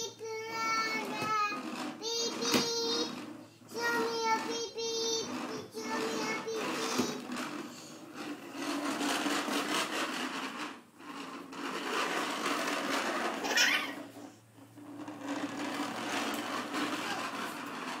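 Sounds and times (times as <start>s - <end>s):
vacuum cleaner motor humming: 5.8s - 18.0s.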